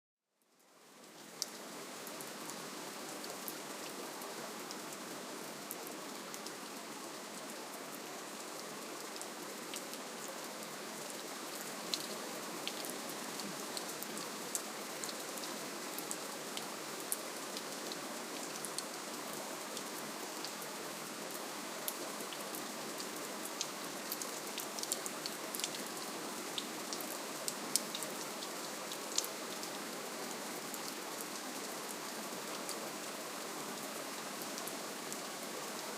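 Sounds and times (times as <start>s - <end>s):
gentle rainfall hiss: 0.3s - 35.9s
rain drops ticking: 21.9s - 29.7s.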